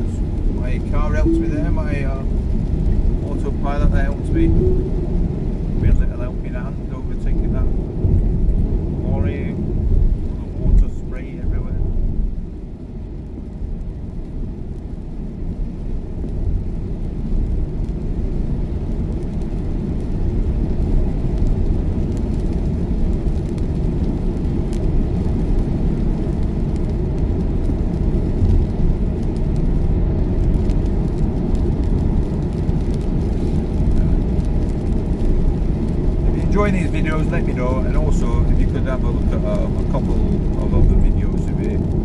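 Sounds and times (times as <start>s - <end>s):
tyre and road rumble: 20.6s - 42.0s.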